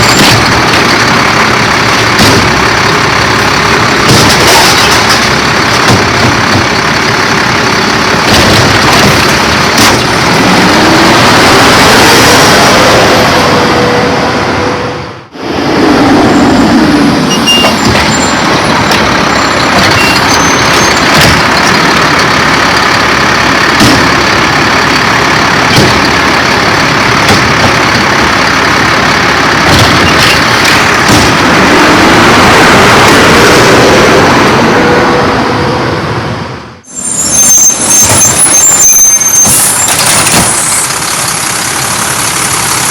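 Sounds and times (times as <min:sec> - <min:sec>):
garbage truck diesel engine: 0:00.0 - 0:42.9
sharp knocks: 0:27.2 - 0:28.0, 0:29.6 - 0:31.5.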